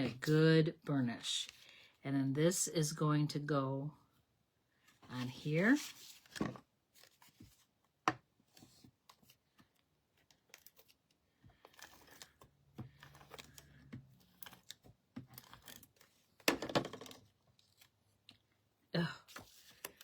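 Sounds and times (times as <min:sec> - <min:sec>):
paper rustling and rubbing: 0:05.2 - 0:07.7.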